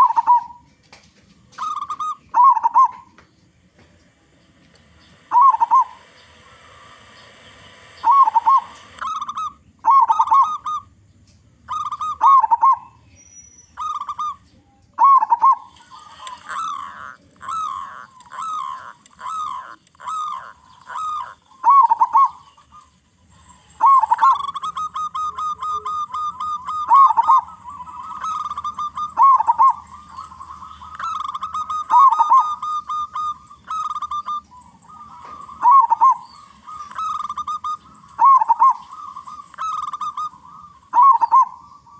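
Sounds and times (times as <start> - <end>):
dove cooing: 0.0 - 0.7, 1.3 - 3.2, 5.1 - 11.0, 11.6 - 13.0, 13.7 - 41.9.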